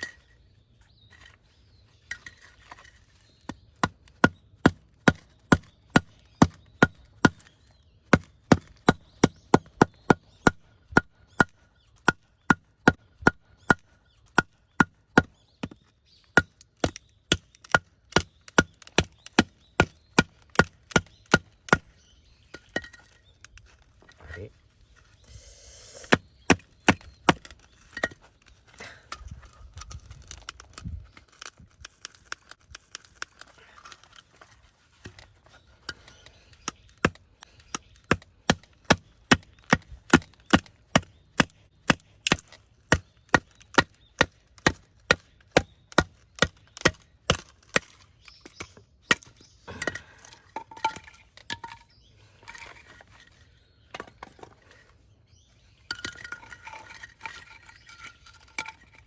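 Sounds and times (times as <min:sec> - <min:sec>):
axe chopping wood: 0:03.8 - 0:07.5, 0:08.1 - 0:15.8, 0:16.4 - 0:21.9, 0:26.1 - 0:28.2, 0:36.7 - 0:51.8.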